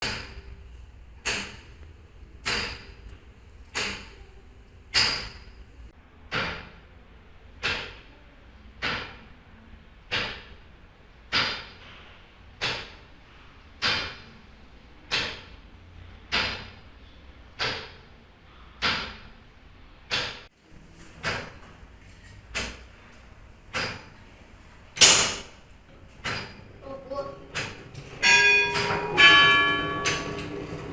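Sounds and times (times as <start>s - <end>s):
loud clack: 25.0s - 25.6s, 27.6s - 30.9s.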